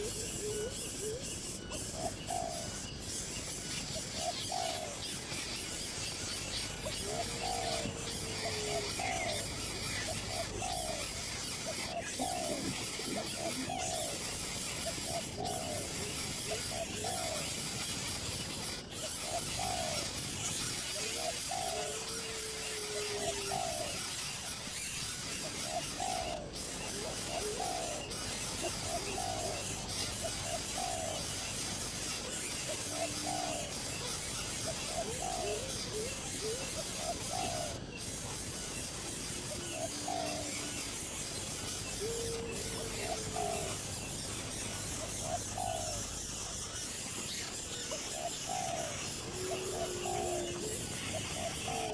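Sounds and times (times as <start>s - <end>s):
bird giving falling calls: 0.0s - 24.2s, 38.8s - 51.9s.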